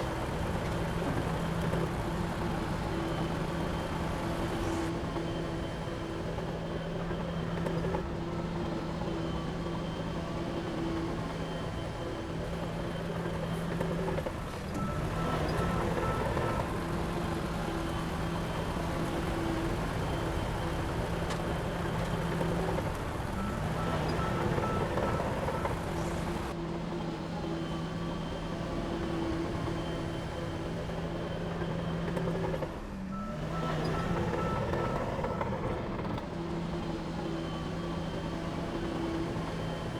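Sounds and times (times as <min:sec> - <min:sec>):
diesel machinery running: 0:00.0 - 0:39.9
reversing alarm beeping: 0:14.8 - 0:39.9.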